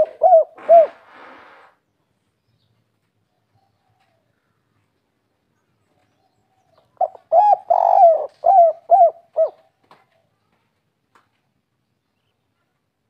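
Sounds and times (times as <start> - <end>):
dove cooing: 0.0 - 1.0, 7.0 - 9.8.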